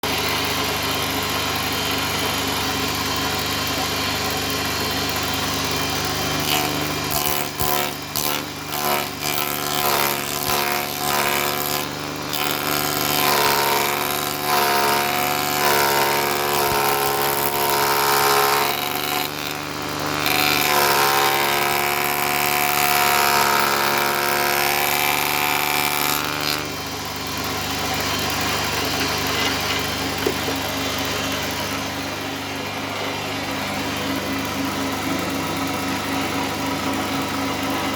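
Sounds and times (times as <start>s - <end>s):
electric power tool running: 0.0s - 37.9s
high-pitched whine under load: 28.4s - 37.9s
knocks on wood: 29.7s - 30.6s.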